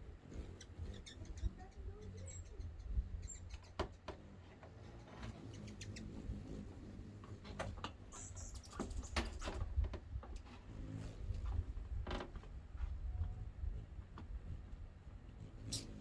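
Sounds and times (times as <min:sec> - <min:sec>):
hummingbirds chip calls: 0:00.1 - 0:09.6, 0:14.9 - 0:16.0.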